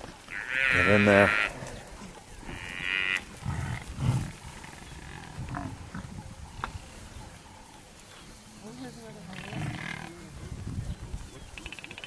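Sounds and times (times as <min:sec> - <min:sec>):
buffalo calf bawling: 0:00.3 - 0:01.6
low rough growls: 0:03.4 - 0:06.2, 0:09.3 - 0:10.7.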